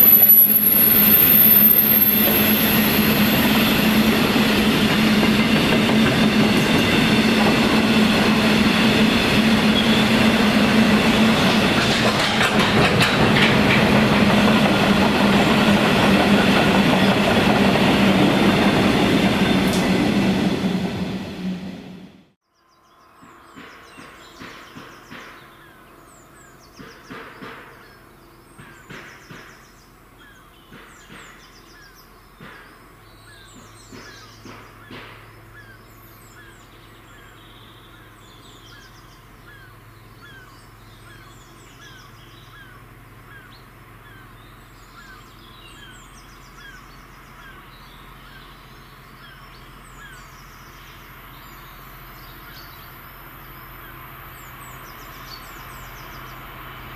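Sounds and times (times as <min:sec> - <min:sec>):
train wheels clacking over rail joints: 0:04.2 - 0:20.0, 0:33.4 - 0:35.3
birds chirping: 0:14.2 - 0:56.6.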